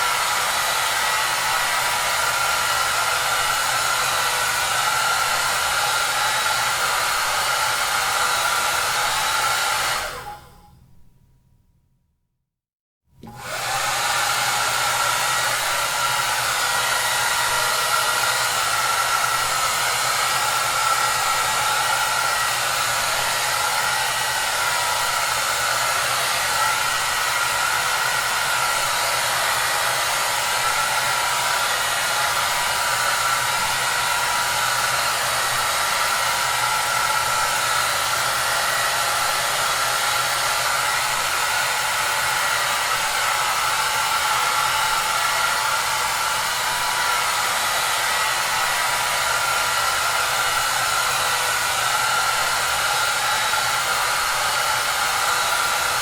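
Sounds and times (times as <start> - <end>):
hair dryer running: 0.0 - 10.7, 13.2 - 56.0.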